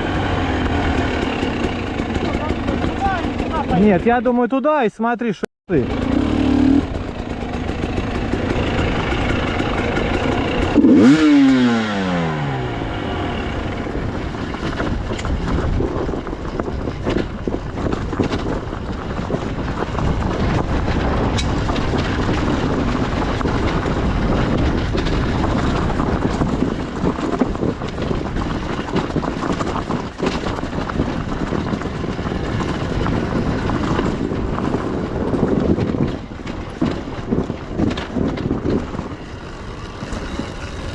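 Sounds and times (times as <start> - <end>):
motorcycle engine running: 0.0 - 4.5, 5.7 - 40.9
wind: 0.0 - 40.9
rattle: 13.4 - 40.9.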